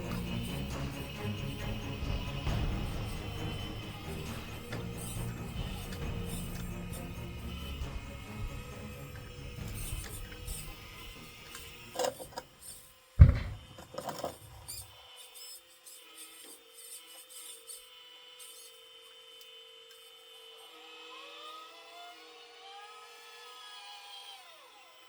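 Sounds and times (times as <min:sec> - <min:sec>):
small motor whine: 0:00.0 - 0:25.0
loud metal clunk: 0:13.2 - 0:14.7.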